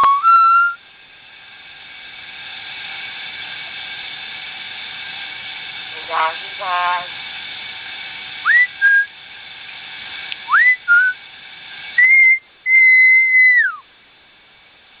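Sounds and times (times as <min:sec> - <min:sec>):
bird whistling: 0:00.0 - 0:00.8, 0:08.5 - 0:09.1, 0:10.5 - 0:11.2, 0:12.0 - 0:13.8.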